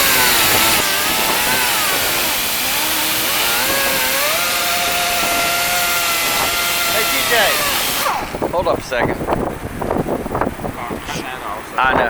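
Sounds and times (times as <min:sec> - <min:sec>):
power tool cutting metal: 0:00.0 - 0:08.5.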